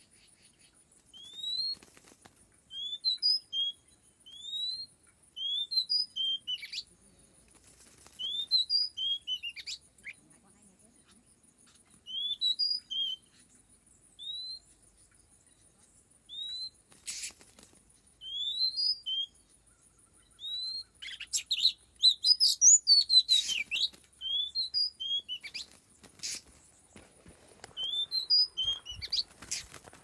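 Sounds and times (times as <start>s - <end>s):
bird whistling and chirping: 1.2s - 1.8s, 2.7s - 6.9s, 8.2s - 9.8s, 12.0s - 13.4s, 14.2s - 14.7s, 18.2s - 19.5s, 20.2s - 26.6s, 27.8s - 29.8s
rustling bursts: 25.4s - 27.9s, 28.5s - 30.0s.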